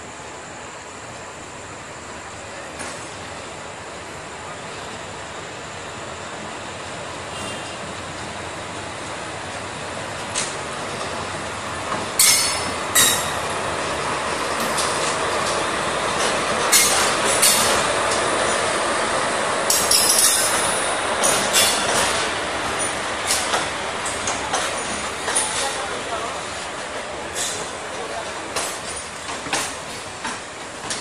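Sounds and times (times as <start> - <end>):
train rumbling past: 0.0 - 31.0
wheels clacking on rails: 7.3 - 31.0.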